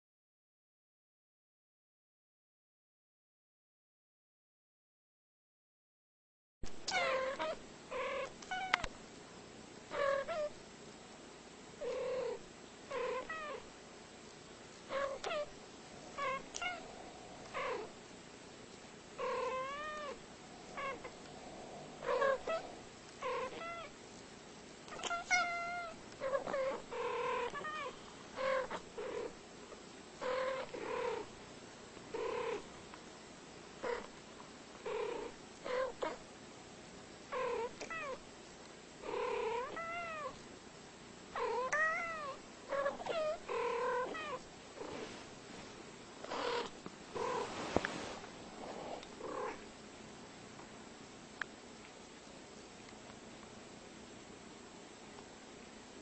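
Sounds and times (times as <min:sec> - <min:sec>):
cats meowing and chirping: 0:06.9 - 0:08.9, 0:13.0 - 0:13.6, 0:19.3 - 0:21.2, 0:22.0 - 0:23.9, 0:24.9 - 0:28.8, 0:39.6 - 0:40.4, 0:41.4 - 0:44.4.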